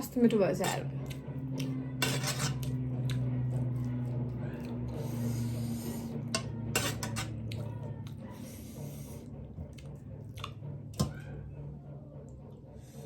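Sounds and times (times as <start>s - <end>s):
person chewing food: 2.6s - 6.1s, 7.5s - 10.6s.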